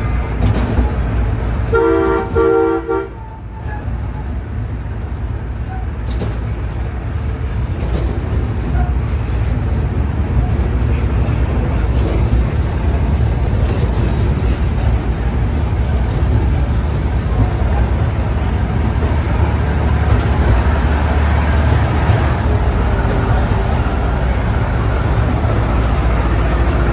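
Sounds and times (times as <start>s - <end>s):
amusement park train rumbling: 0.0s - 26.9s.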